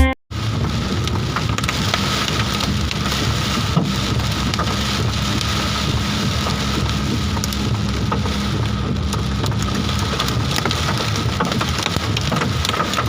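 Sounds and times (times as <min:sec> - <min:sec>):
hail pelting hard surfaces: 0:00.3 - 0:13.0
heavy rain rushing: 0:00.3 - 0:13.0.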